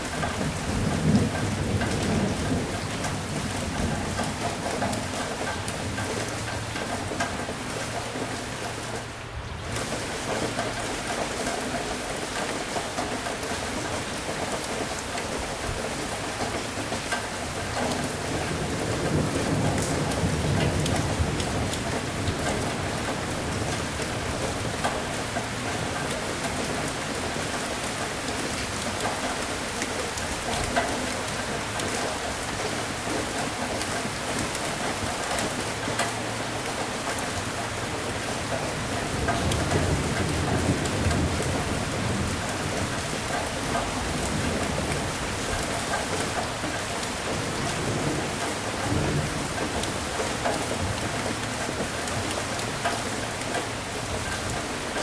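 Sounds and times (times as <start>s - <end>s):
steady rain falling: 0.0s - 55.0s
low thunder rolling: 0.2s - 6.1s.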